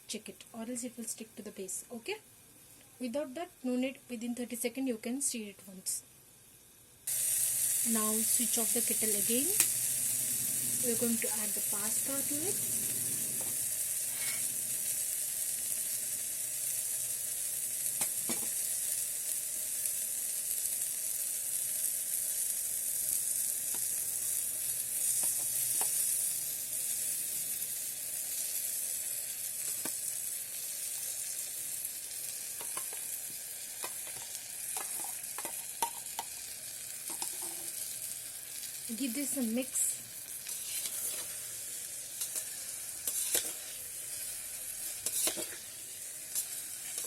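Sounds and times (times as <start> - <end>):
food sizzling: 0.0 - 47.0
clicks and scrapes of stirring: 40.5 - 41.4, 42.2 - 43.8, 45.0 - 45.6.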